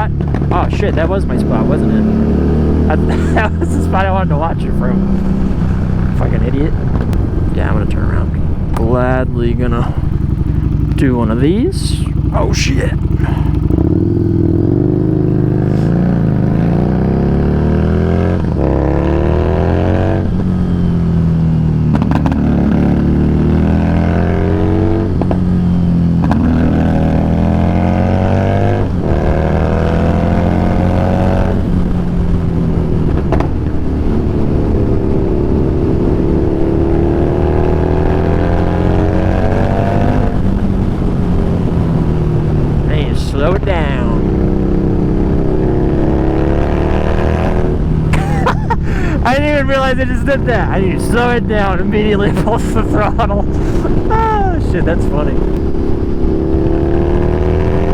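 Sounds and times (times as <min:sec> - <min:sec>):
motorcycle accelerating and shifting: 0:00.0 - 0:57.9.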